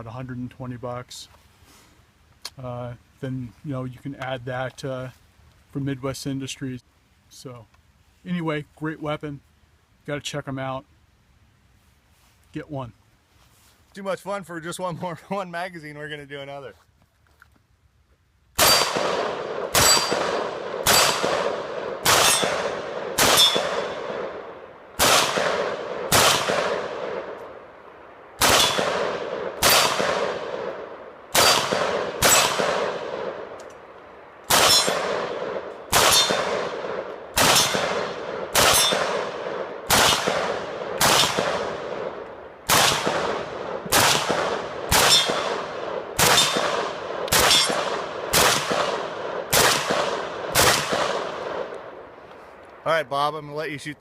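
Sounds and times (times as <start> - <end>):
pistol shots with ringing echo: 18.6 - 27.4, 28.4 - 33.6, 34.5 - 52.0.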